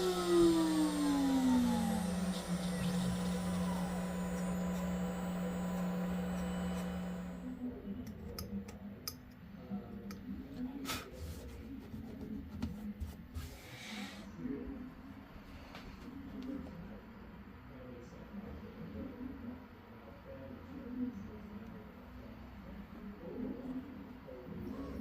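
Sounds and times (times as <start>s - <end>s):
cnc router humming: 0.0s - 7.7s.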